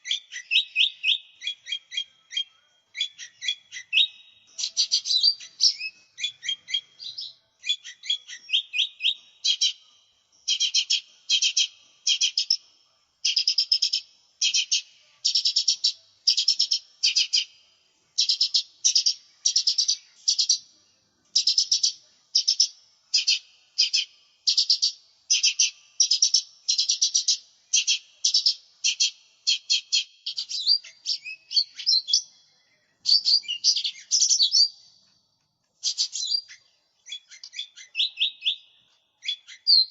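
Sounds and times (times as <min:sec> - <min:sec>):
bird singing chattering trills: 0:00.0 - 0:09.8, 0:10.4 - 0:12.6, 0:13.2 - 0:17.5, 0:18.2 - 0:20.6, 0:21.3 - 0:34.8, 0:35.8 - 0:39.9.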